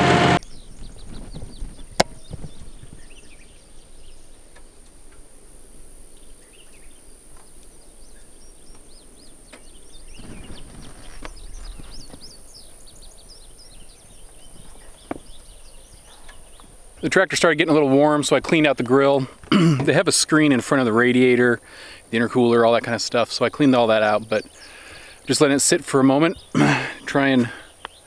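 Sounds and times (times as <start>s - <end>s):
high-pitched whine: 0.0s - 0.4s
birds chirping and singing: 0.4s - 4.5s, 6.2s - 18.3s, 23.2s - 28.0s.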